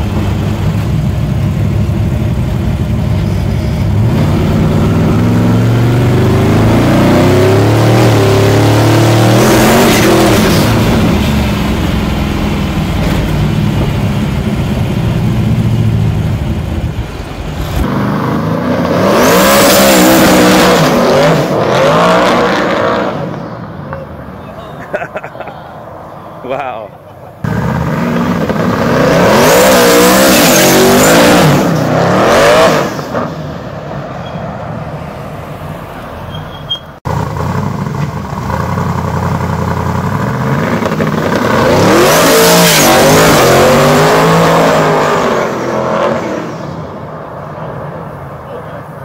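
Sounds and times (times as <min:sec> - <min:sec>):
car engine accelerating: 0:00.0 - 0:24.3.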